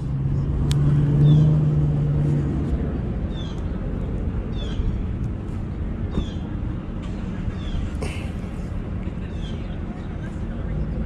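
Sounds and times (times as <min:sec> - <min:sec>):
bird chirping: 0:04.5 - 0:05.0.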